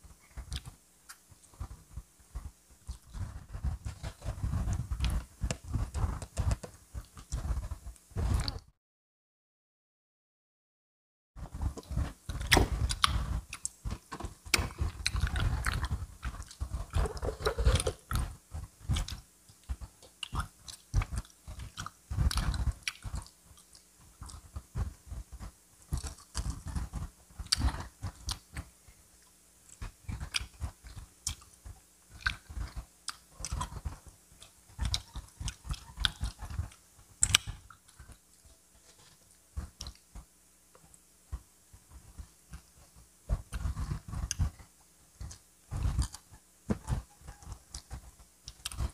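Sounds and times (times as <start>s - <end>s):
crunchy chewing of fried chicken: 0.1s - 8.6s, 11.4s - 48.9s.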